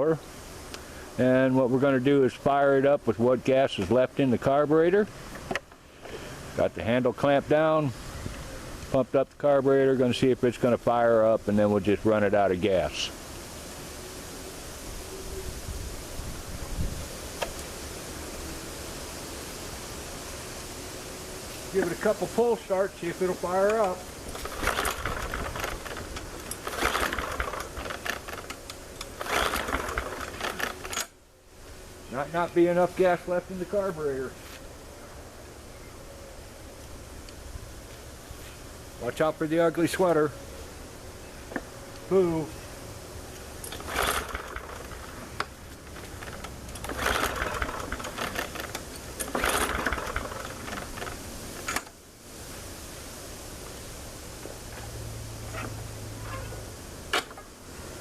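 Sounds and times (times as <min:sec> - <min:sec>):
engine turning over: 0:21.8 - 0:31.2, 0:43.6 - 0:51.9
mower pull-starter rattling: 0:21.8 - 0:31.2, 0:43.6 - 0:52.0, 0:57.1 - 0:57.5.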